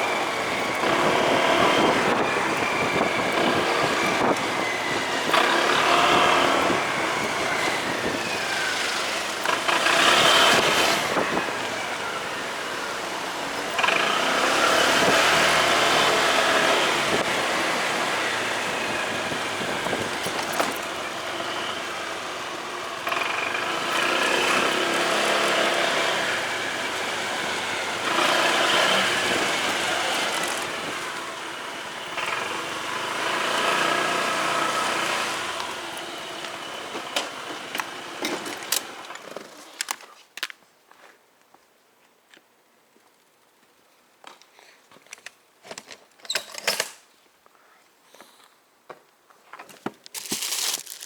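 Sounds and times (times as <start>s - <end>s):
rushing wind: 0.0s - 13.0s, 13.6s - 21.8s
motorcycle engine accelerating: 0.0s - 39.0s.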